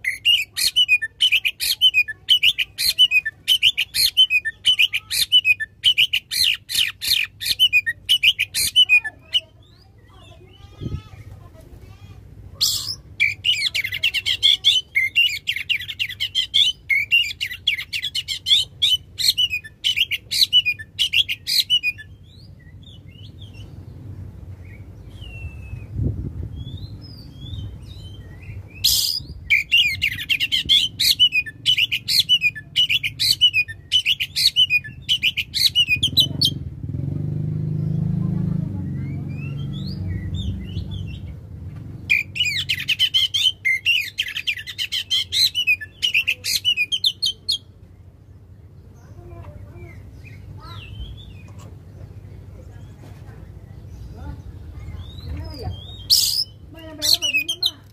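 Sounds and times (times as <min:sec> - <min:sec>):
bird singing chirps and whistles: 0:00.0 - 0:09.1, 0:12.6 - 0:23.7, 0:24.6 - 0:36.3, 0:38.9 - 0:41.2, 0:42.1 - 0:47.7, 0:54.8 - 0:57.8.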